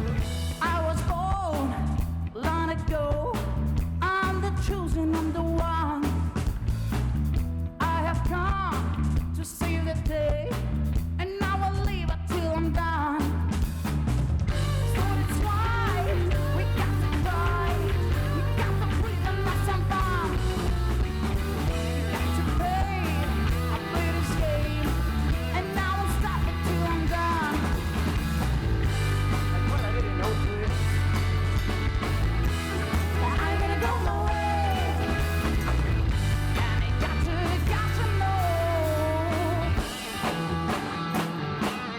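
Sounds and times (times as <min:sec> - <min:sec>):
person singing lead vocals: 0:00.0 - 0:06.4, 0:14.5 - 0:28.3, 0:32.4 - 0:41.3
live rock band playing: 0:00.0 - 0:41.9.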